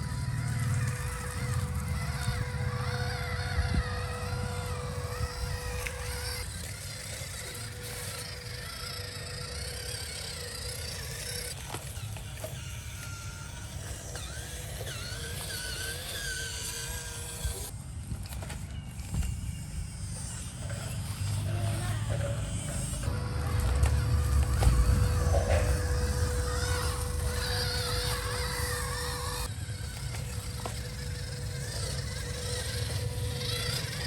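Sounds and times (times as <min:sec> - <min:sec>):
electric motor whining: 0:00.0 - 0:34.0
low rumble: 0:23.0 - 0:29.5.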